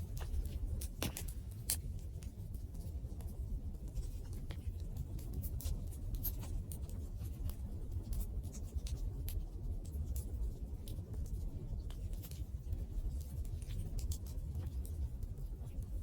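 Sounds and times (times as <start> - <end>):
fire popping and snapping: 0.0 - 2.4.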